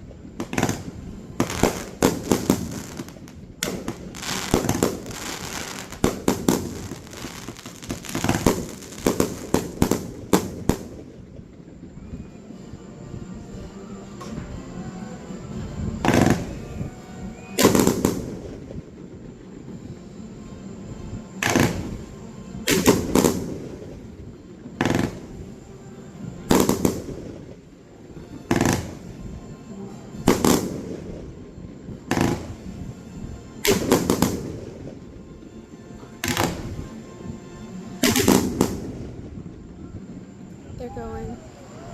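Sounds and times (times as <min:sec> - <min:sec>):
fireworks banging and crackling: 0:00.0 - 0:11.8, 0:15.9 - 0:20.0, 0:21.2 - 0:41.8.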